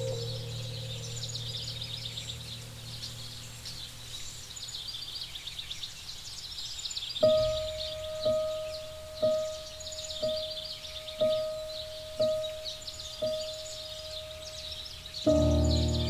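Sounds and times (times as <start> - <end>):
music: 0.0 - 2.3, 7.2 - 16.0
low hum: 0.0 - 3.8, 15.3 - 16.0
birds chirping and trilling: 0.0 - 16.0.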